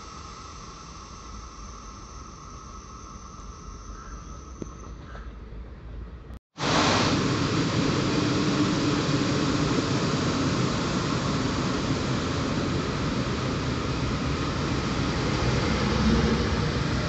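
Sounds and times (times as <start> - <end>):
train rumbling into platform: 4.8 - 17.0.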